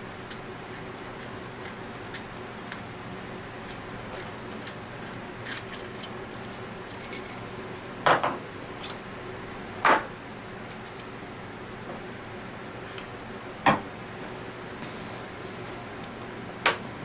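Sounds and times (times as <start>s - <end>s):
metal parts clinking: 5.5s - 7.6s
tools clattering: 5.5s - 8.2s.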